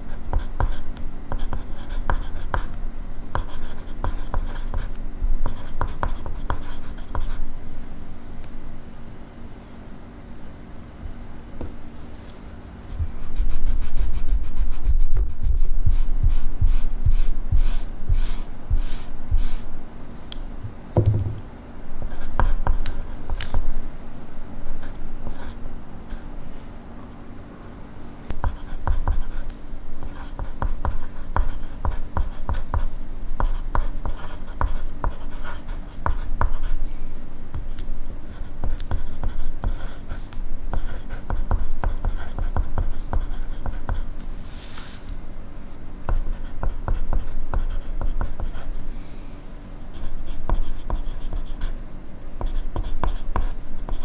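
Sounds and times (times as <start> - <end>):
pencil scratching on paper: 1.4 - 2.7, 3.4 - 4.9, 5.5 - 7.4, 13.2 - 19.7, 28.4 - 36.8, 38.3 - 44.1, 46.1 - 48.7, 49.9 - 51.8, 52.4 - 54.0.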